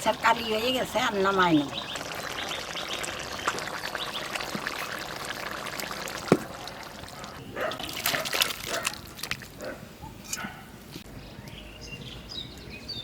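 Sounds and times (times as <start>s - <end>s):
curry bubbling: 0.0s - 9.6s.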